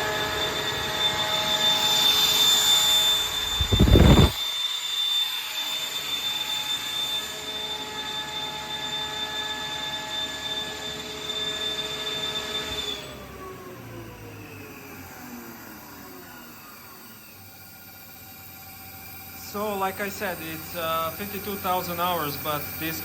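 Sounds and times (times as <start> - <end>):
air compressor whining: 0.0 - 4.4, 5.8 - 23.0
loud burst: 3.4 - 4.4.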